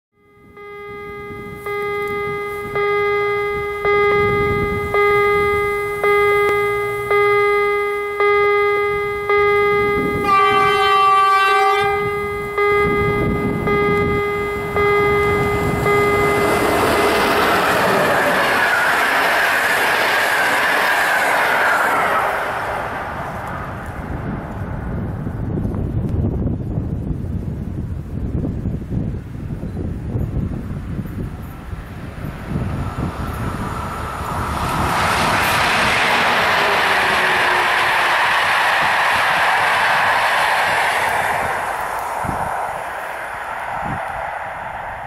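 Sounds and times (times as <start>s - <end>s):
pulsing ringing tone: 0.1s - 19.2s, 32.2s - 38.4s
locomotive horn: 0.2s - 19.1s, 34.8s - 38.3s
train rolling past: 0.4s - 27.0s, 30.2s - 45.0s.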